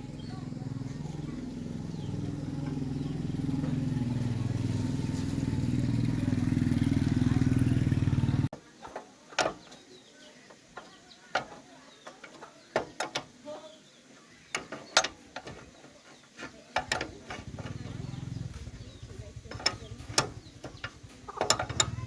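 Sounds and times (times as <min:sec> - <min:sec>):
metal tools clanking on metal: 0:14.5 - 0:18.3, 0:19.0 - 0:22.0
ratchet clicking: 0:19.4 - 0:22.0.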